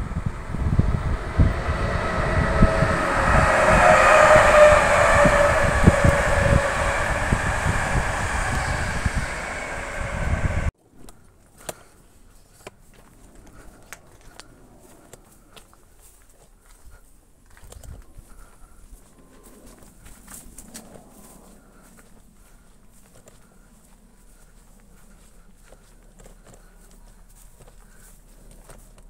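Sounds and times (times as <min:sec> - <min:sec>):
train wheel and rail noise: 0:00.0 - 0:10.7
wind buffeting microphone: 0:00.0 - 0:10.7.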